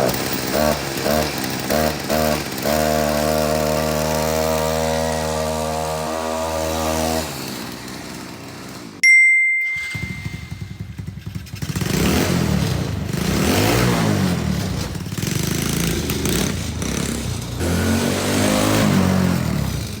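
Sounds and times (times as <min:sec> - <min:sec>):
small engine revving: 0:00.0 - 0:09.0, 0:10.0 - 0:20.0
small gasoline engine running: 0:00.0 - 0:09.0, 0:09.8 - 0:20.0
sharp ringing ding: 0:09.0 - 0:11.0.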